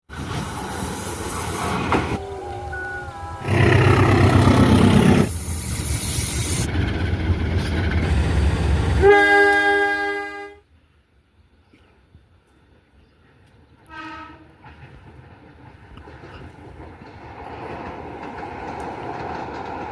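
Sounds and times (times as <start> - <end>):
train rumbling on rails: 0.0 - 10.6, 12.4 - 19.9
locomotive horn blast: 2.2 - 5.3, 9.0 - 10.6, 13.9 - 14.6.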